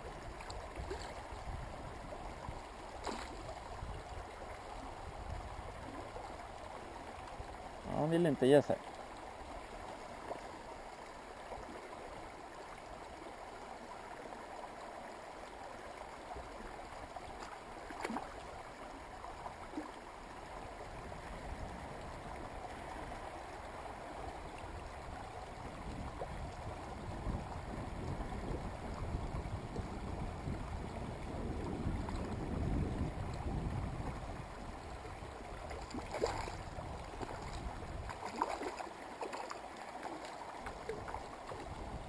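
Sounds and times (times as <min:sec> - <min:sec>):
wind rumble on microphone: 0:00.0 - 0:07.7, 0:20.6 - 0:38.8, 0:40.6 - 0:42.0
stream flowing: 0:00.0 - 0:42.0.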